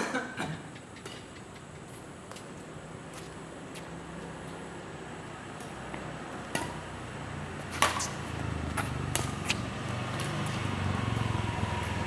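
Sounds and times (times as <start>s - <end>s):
racket striking shuttlecock: 5.6s - 6.9s, 7.7s - 10.6s.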